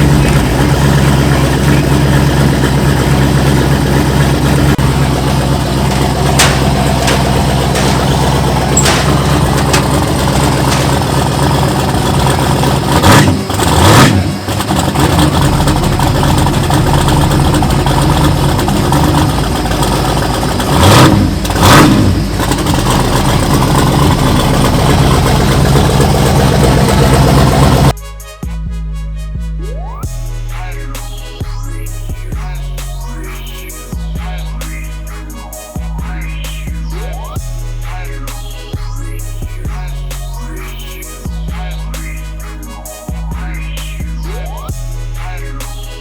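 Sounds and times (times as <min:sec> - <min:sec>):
drag racing engine idling: 0:00.0 - 0:28.0
engines revving: 0:00.0 - 0:28.0
music: 0:05.9 - 0:11.2, 0:28.0 - 0:46.0.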